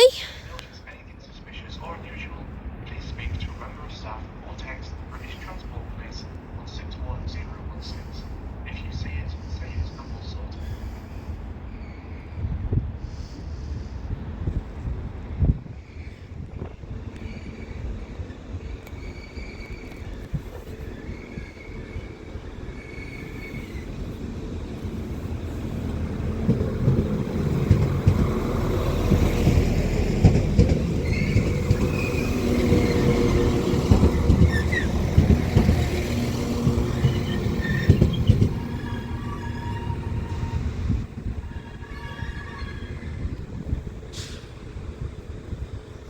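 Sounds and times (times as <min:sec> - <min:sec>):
train engine and rail noise: 0:00.0 - 0:46.0
wheel squeal on rails: 0:17.2 - 0:24.1, 0:30.3 - 0:43.4.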